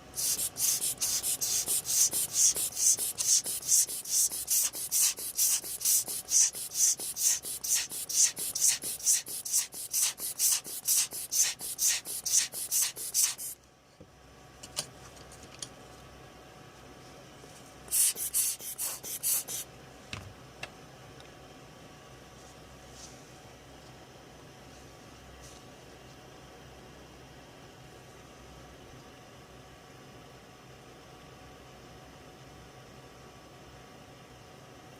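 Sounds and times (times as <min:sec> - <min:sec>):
rapid scrubbing strokes: 0:00.2 - 0:13.6.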